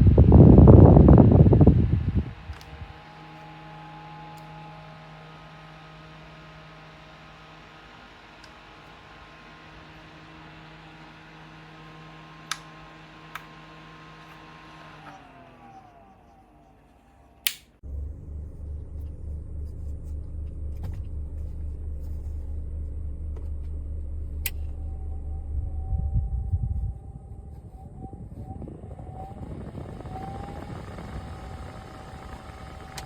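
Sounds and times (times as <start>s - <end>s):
rush of air from fan: 0.0s - 3.0s
fan motor humming: 0.0s - 33.0s
fan winding down: 0.0s - 33.0s
sharp clicks: 17.4s - 17.8s.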